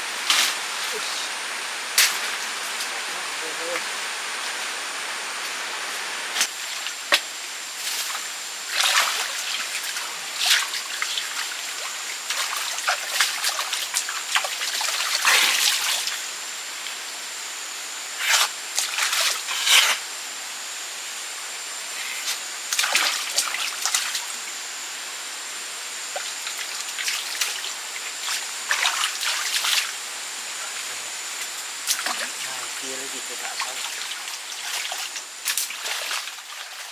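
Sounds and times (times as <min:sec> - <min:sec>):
water splashing and sloshing: 0:06.3 - 0:16.3, 0:18.2 - 0:19.8, 0:22.3 - 0:24.5, 0:26.1 - 0:36.9.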